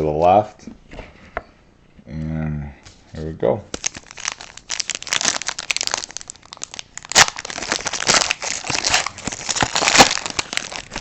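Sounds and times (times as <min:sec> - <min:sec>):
wrapper tearing and crinkling: 0:03.7 - 0:11.0.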